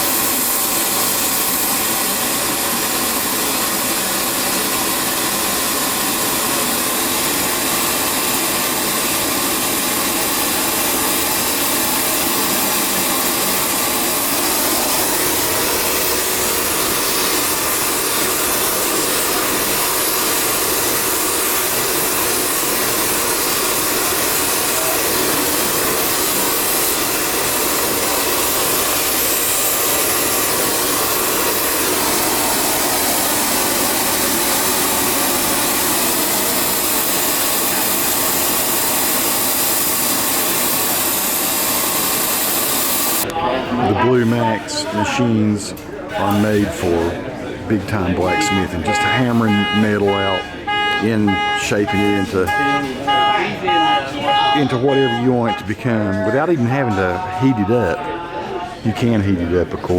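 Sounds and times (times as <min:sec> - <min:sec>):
steady rushing blower noise: 0:00.0 - 0:43.3.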